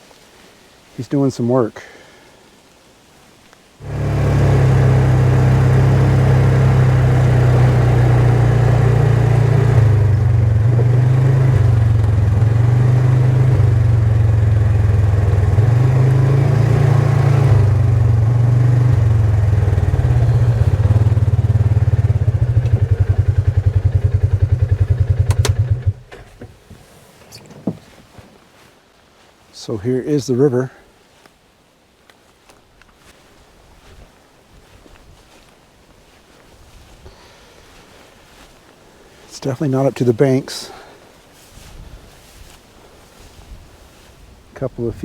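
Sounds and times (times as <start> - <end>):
small vehicle engine running: 3.8 - 26.3.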